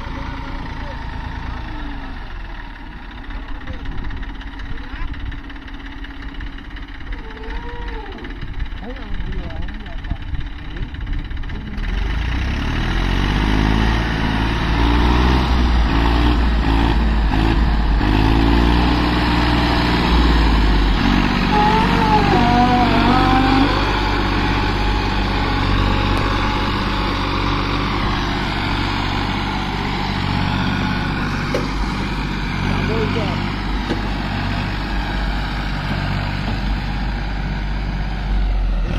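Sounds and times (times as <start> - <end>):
tractor diesel engines running: 0.0 - 38.9
wavering high-pitched tone: 21.5 - 26.7.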